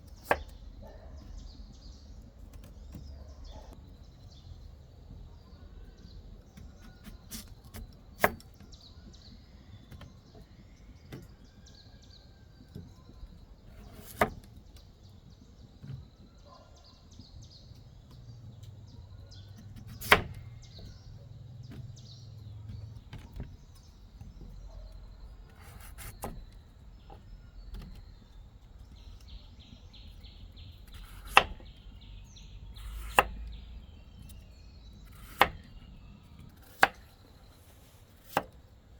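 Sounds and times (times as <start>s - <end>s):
faint bird chirping: 0.0s - 38.9s.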